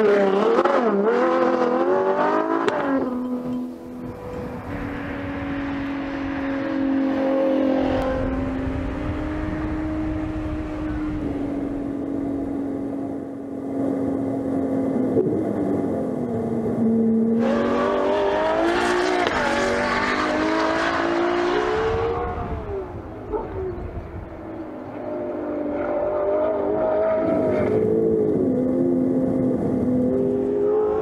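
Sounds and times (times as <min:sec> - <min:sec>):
sports car engine revving: 0:00.0 - 0:24.1.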